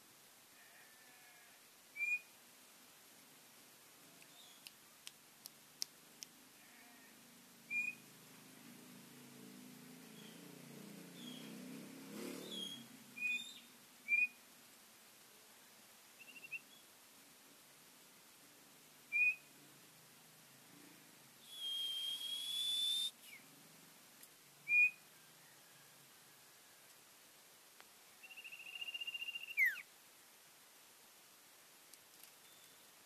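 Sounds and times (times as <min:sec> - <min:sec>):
long rising bird whistle: 0:02.0 - 0:02.3, 0:07.7 - 0:08.0, 0:12.4 - 0:14.4, 0:16.2 - 0:16.8, 0:19.1 - 0:19.5, 0:21.4 - 0:23.4, 0:24.6 - 0:25.0, 0:28.2 - 0:29.9
bird chirps and trill: 0:07.7 - 0:08.0, 0:10.1 - 0:10.5, 0:11.2 - 0:11.6, 0:12.4 - 0:14.4, 0:16.2 - 0:16.8, 0:24.7 - 0:25.1, 0:28.2 - 0:29.8.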